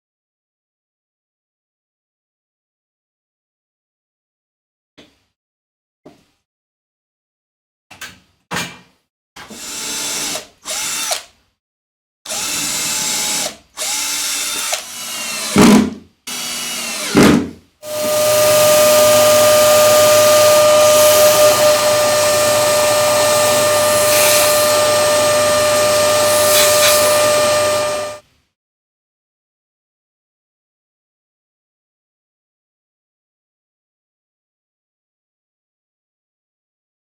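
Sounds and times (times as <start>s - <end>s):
electric drill spinning: 9.5s - 11.3s, 12.3s - 28.2s.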